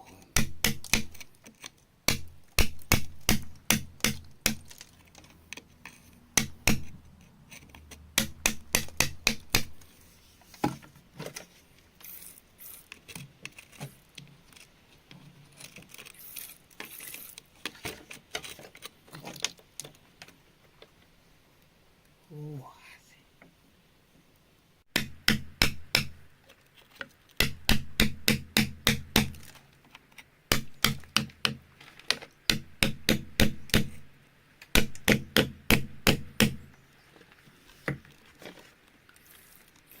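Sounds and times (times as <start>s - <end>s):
hard objects striking rock: 0.3s - 1.3s, 2.1s - 5.0s, 5.8s - 7.1s, 8.1s - 9.8s, 24.9s - 26.2s, 27.4s - 29.6s, 30.5s - 34.0s, 34.7s - 36.7s.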